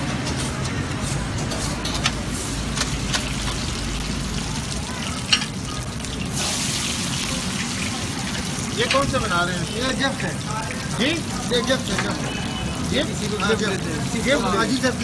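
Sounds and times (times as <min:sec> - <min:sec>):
metal spatulas clicking on griddle: 0:00.0 - 0:03.7, 0:05.2 - 0:05.6
food sizzling in hot oil: 0:00.0 - 0:15.0.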